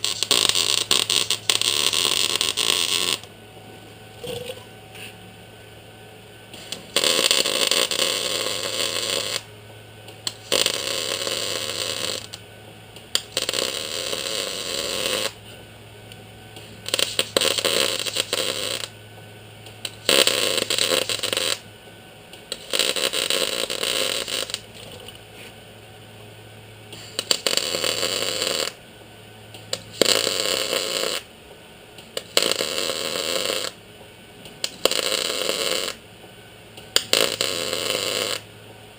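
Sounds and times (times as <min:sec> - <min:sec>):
welder buzzing and crackling: 0:00.0 - 0:05.3, 0:06.3 - 0:19.0, 0:19.6 - 0:25.6, 0:26.8 - 0:36.1, 0:36.7 - 0:38.7
low hum: 0:00.7 - 0:07.0.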